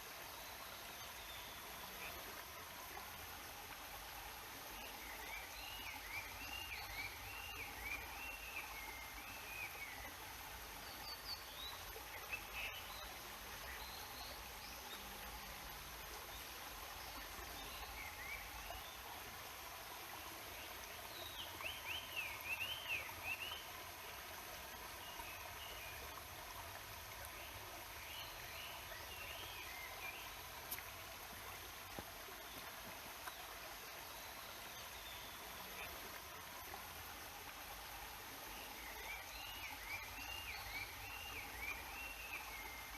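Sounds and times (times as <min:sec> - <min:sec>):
mountain stream rushing: 0:00.0 - 0:42.9
songbird singing: 0:21.1 - 0:23.7, 0:38.5 - 0:42.9.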